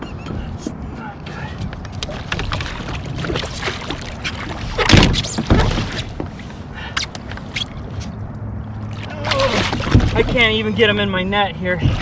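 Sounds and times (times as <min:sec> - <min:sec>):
heavy thumps against a kayak: 0:04.8 - 0:06.4.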